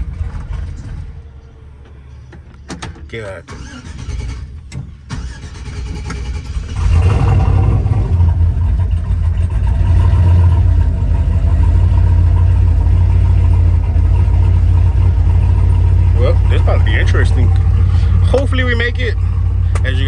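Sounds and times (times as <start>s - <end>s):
pickup engine droning: 0.0s - 20.0s.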